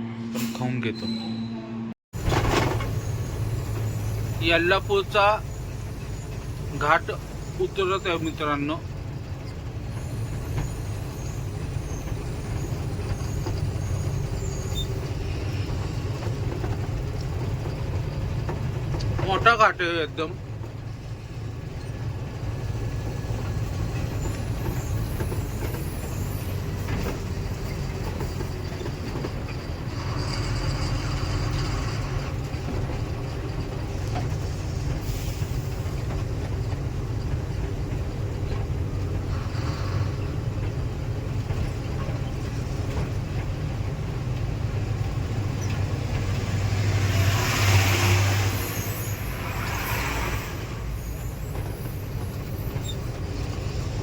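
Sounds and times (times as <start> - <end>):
truck engine and road rumble: 0.0 - 54.0
air brake hissing: 34.7 - 36.2, 39.1 - 40.6, 45.6 - 53.3.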